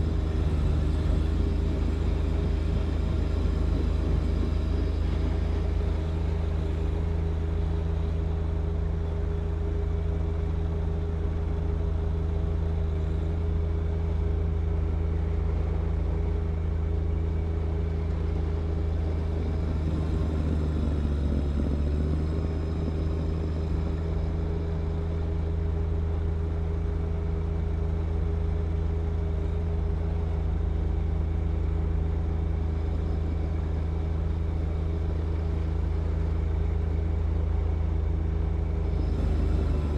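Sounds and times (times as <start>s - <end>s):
tractor diesel engine running: 0.0s - 39.9s
snow blower through wet snow: 38.9s - 39.9s.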